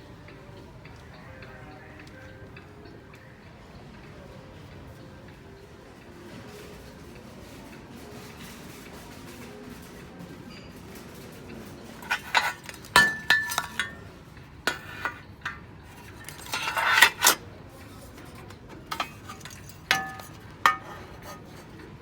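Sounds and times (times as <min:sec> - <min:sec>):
dishes and cutlery clinking: 0:08.0 - 0:22.0
short scraping rattle: 0:12.0 - 0:14.0.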